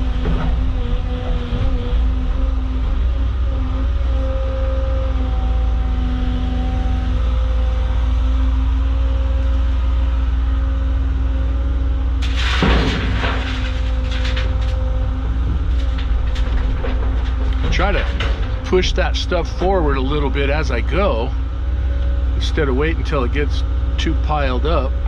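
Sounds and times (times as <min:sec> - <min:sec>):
excavator diesel engine: 0:00.0 - 0:25.0
rocks crashing into truck bed: 0:12.2 - 0:14.8.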